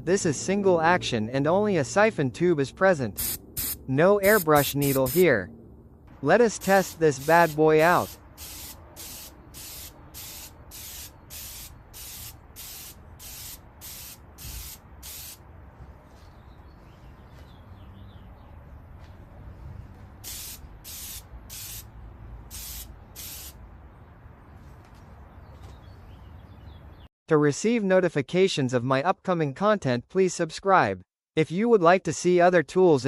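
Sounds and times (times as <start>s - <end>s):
air sprayer hissing bursts: 3.2s - 5.2s, 6.6s - 15.4s, 20.2s - 21.9s, 22.5s - 23.6s.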